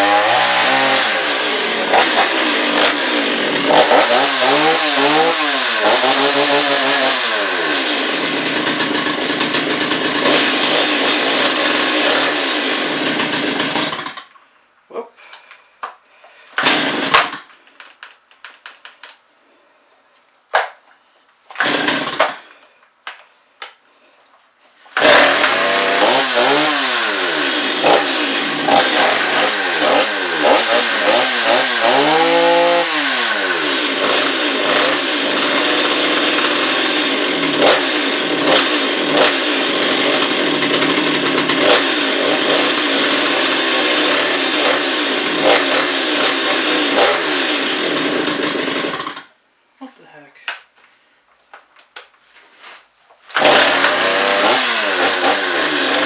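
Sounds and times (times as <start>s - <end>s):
chainsaw engine revving: 0.0s - 14.2s, 16.6s - 17.5s, 21.6s - 22.5s, 25.0s - 49.3s, 53.3s - 56.0s
chainsaw pull-start: 0.0s - 14.3s, 16.6s - 18.1s, 21.5s - 22.6s, 24.9s - 49.4s, 53.3s - 56.0s.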